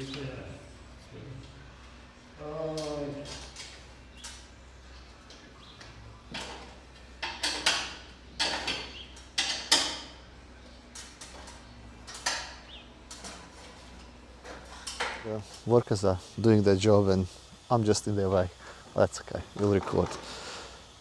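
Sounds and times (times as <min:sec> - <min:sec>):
scrapes and knocks of tools: 0:05.2 - 0:10.2, 0:10.8 - 0:15.6.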